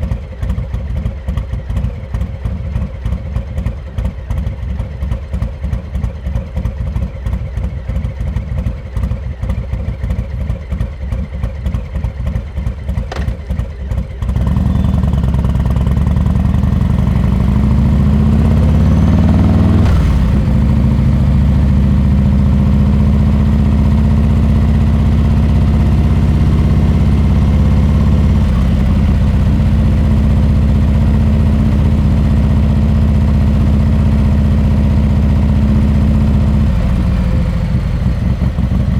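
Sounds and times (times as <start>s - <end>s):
motorcycle engine idling: 0.0s - 38.9s
motorcycle revving and pulling away: 9.8s - 38.9s.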